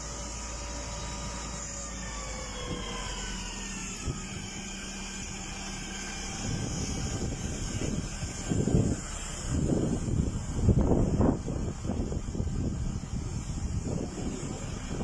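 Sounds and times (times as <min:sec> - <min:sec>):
wind buffeting microphone: 0:03.9 - 0:15.0.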